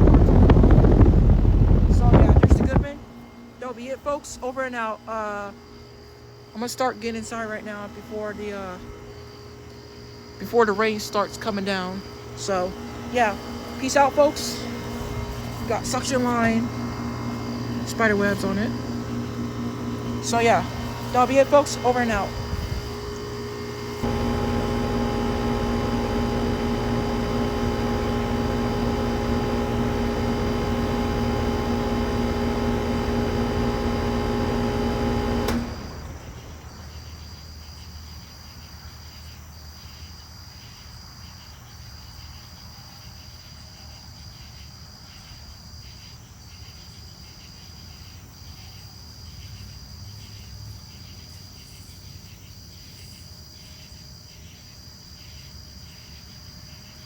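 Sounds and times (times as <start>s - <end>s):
crickets chirping: 0.0s - 34.7s, 35.8s - 57.0s
air conditioner humming: 0.0s - 37.0s.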